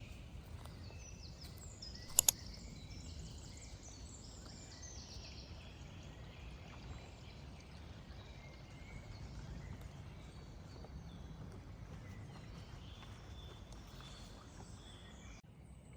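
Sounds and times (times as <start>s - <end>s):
songbirds chirping: 0.0s - 15.4s
sharp clicks: 2.0s - 2.4s.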